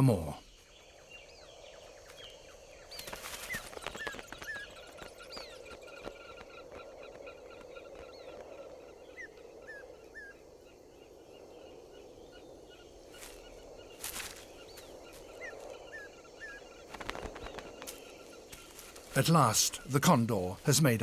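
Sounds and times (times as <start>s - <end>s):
bird chirping: 0.0s - 21.0s
background hiss: 7.2s - 21.0s
rustling: 13.2s - 15.7s.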